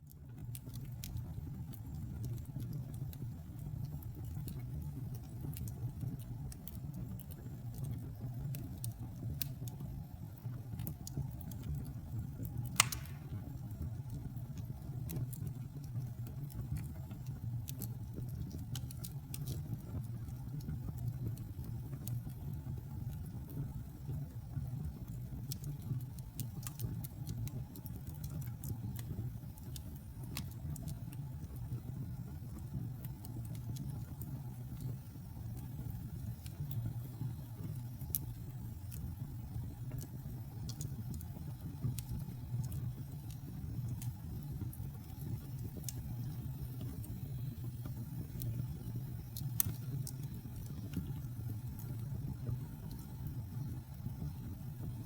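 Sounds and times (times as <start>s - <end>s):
wood fire crackling: 0.0s - 55.0s
loud pop from fire: 12.8s - 13.6s.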